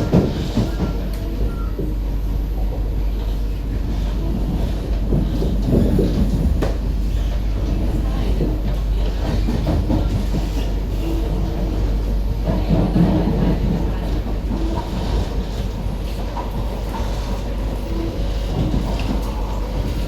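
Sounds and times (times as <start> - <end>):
metro train interior rumble: 0.0 - 20.0.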